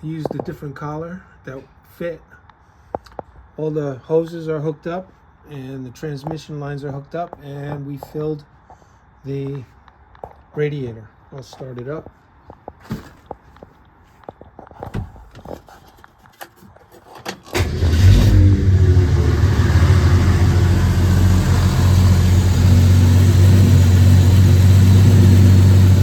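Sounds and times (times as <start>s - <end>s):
car engine starting and idling: 17.2s - 26.0s.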